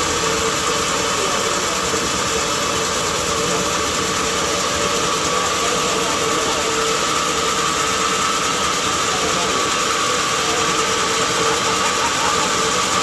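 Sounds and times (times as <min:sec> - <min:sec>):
sawmill machinery humming: 0:00.0 - 0:13.0.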